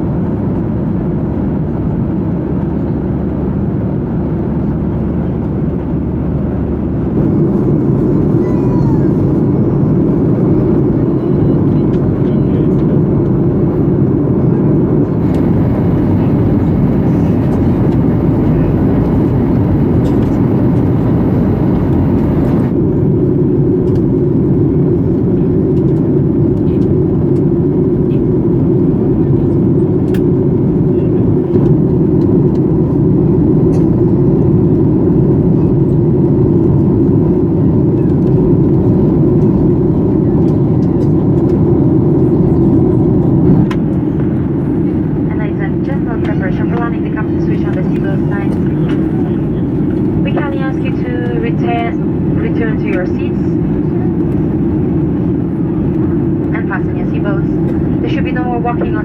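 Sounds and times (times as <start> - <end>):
airplane cabin drone: 0.0 - 59.0
faint high whine: 15.2 - 22.8.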